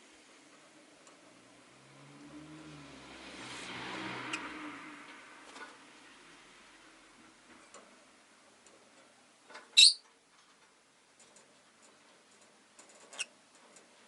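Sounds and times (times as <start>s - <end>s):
bird high chirp: 9.8s - 10.0s.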